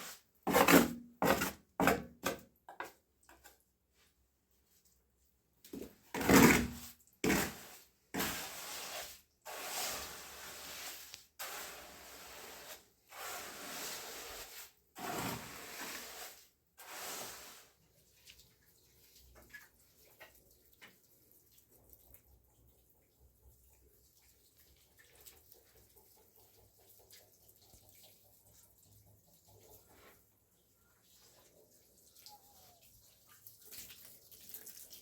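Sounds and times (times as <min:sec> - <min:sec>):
hand tool scraping wet cement: 0:00.0 - 0:03.5, 0:05.8 - 0:17.8.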